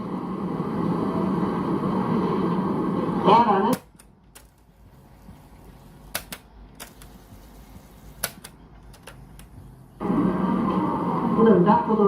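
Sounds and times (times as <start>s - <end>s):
cassette player controls clicking: 3.7s - 4.6s, 5.6s - 9.7s.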